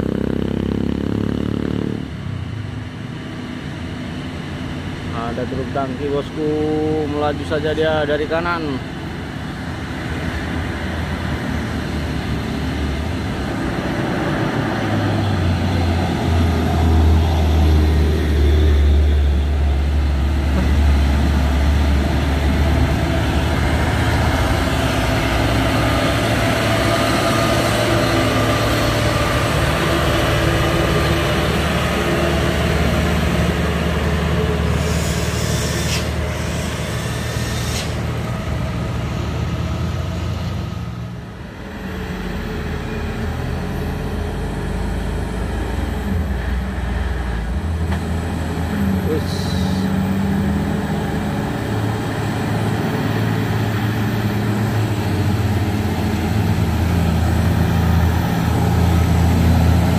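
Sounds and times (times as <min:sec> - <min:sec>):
truck diesel engine passing: 0:00.0 - 0:59.9
short air hisses: 0:34.8 - 0:38.0.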